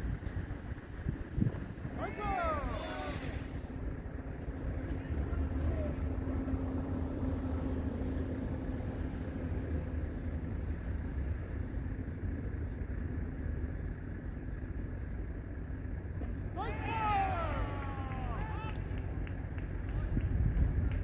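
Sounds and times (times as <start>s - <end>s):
wind buffeting microphone: 0.0s - 7.4s, 18.2s - 21.0s.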